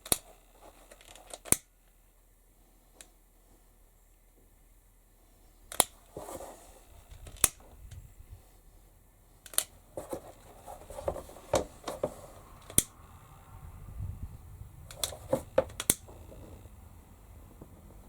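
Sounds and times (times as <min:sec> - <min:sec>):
soft rustling and scraping: 0:00.2 - 0:01.5, 0:02.5 - 0:12.9, 0:14.9 - 0:18.0
sharp clicks: 0:14.8 - 0:16.1.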